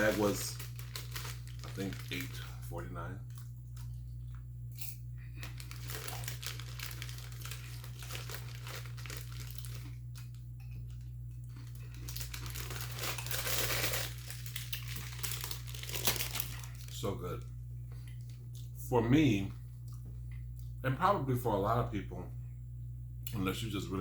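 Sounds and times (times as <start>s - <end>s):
popcorn bag crinkling: 0.0s - 4.4s, 5.4s - 17.4s.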